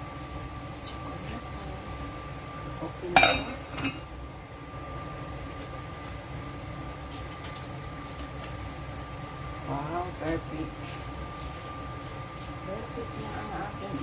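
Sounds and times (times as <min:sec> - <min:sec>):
steady hum: 0:00.0 - 0:14.0
kitchenware clanking: 0:03.1 - 0:04.1.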